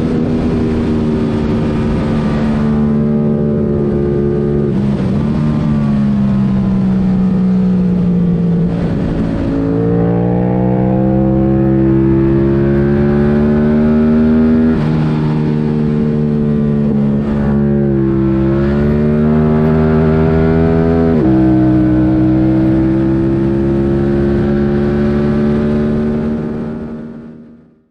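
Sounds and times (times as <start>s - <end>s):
motorcycle engine revving under load: 0.0s - 27.7s.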